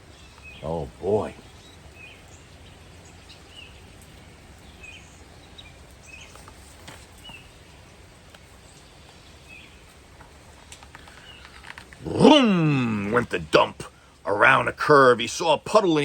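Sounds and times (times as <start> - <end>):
faint bird chirps: 10.9 - 13.1.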